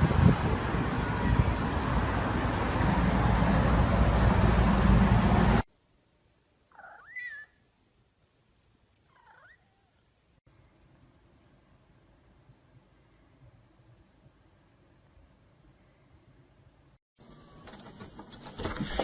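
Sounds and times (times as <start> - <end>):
cat meowing: 6.7 - 7.6, 9.1 - 10.0.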